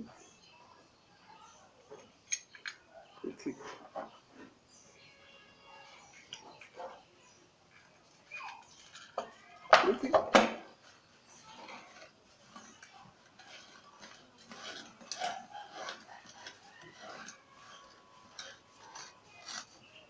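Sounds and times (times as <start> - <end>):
tools and metal parts clicking: 2.0 - 2.9, 6.0 - 7.0, 7.7 - 19.9.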